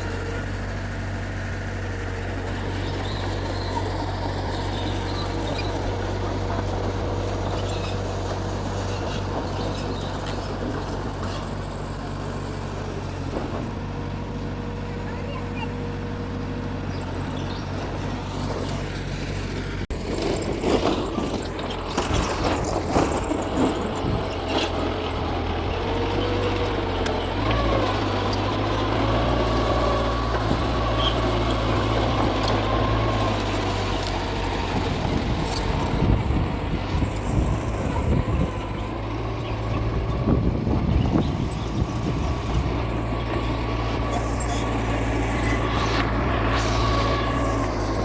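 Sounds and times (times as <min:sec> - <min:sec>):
diesel bulldozer engine running: 0:00.0 - 0:48.0
wavering squeal: 0:42.9 - 0:48.0.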